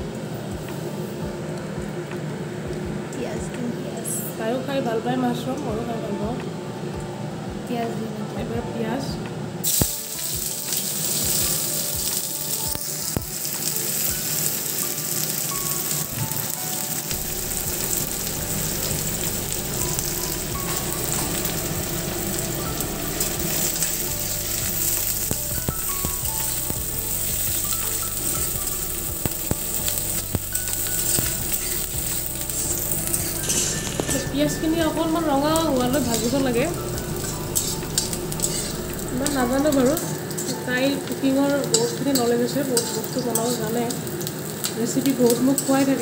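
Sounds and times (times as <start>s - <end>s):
onions sizzling in hot oil: 9.6s - 46.0s.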